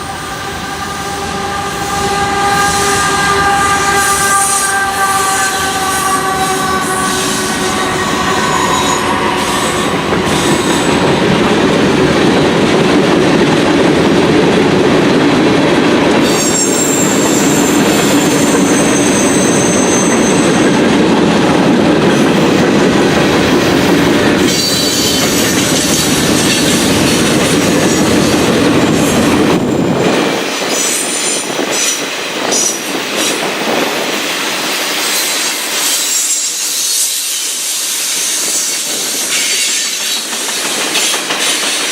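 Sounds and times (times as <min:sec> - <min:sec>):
train horn: 0:00.0 - 0:11.2, 0:35.2 - 0:40.2
freight cars rumbling over rails: 0:00.0 - 0:35.1
steel wheel squeal: 0:05.3 - 0:11.0, 0:16.2 - 0:20.8, 0:24.5 - 0:26.7, 0:35.0 - 0:41.8.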